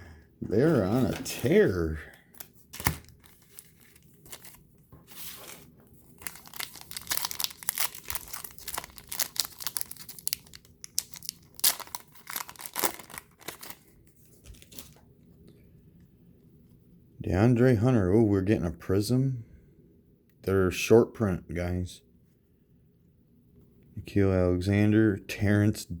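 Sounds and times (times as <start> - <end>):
card pack wrapper tearing and crinkling: 0.8 - 15.0.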